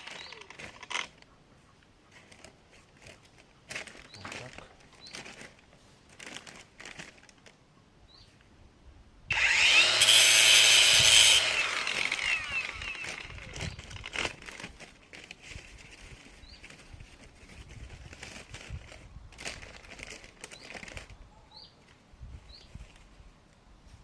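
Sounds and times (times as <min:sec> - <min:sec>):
rustling: 0:00.0 - 0:01.3, 0:02.1 - 0:07.6, 0:11.5 - 0:24.0
angle grinder grinding metal rod: 0:09.3 - 0:13.4.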